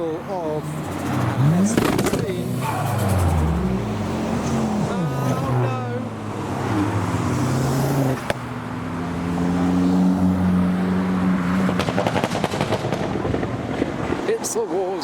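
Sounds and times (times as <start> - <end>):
car engines driving past: 0.0 - 14.9
exhaust pops and crackles: 0.8 - 2.8, 11.6 - 14.0.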